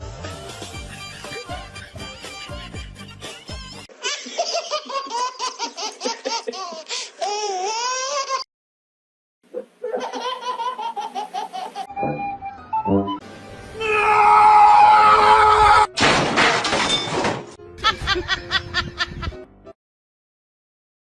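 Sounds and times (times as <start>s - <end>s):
music: 0.0s - 3.9s, 11.9s - 16.0s, 17.3s - 19.8s
small child laughing: 1.0s - 8.5s, 9.8s - 11.9s.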